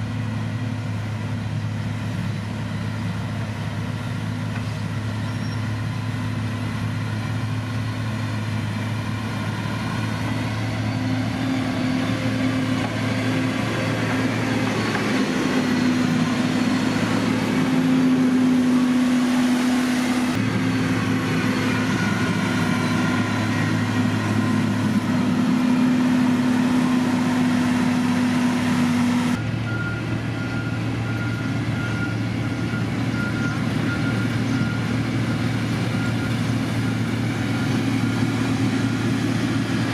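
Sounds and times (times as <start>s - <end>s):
heavy diesel machinery running: 0.0s - 39.9s
reversing alarm beeping: 14.2s - 25.4s, 29.0s - 38.2s.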